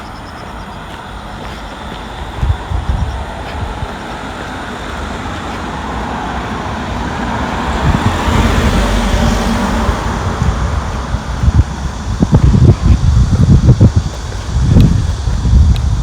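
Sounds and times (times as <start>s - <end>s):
vehicle driving past: 2.5s - 12.6s.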